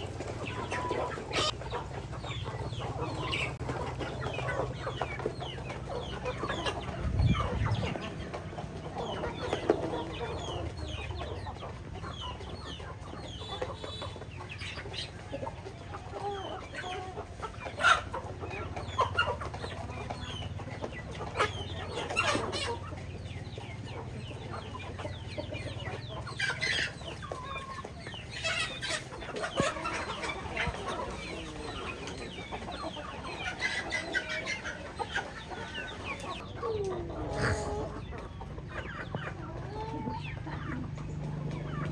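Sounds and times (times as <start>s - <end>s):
chickens clucking: 0.0s - 41.9s
chicken squawks: 0.2s - 8.2s, 21.2s - 23.0s, 24.5s - 41.9s.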